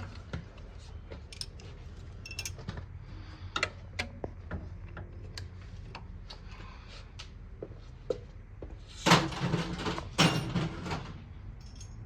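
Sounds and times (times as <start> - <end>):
steady low hum: 0.0 - 12.0
metallic clicks of tools: 11.6 - 12.0.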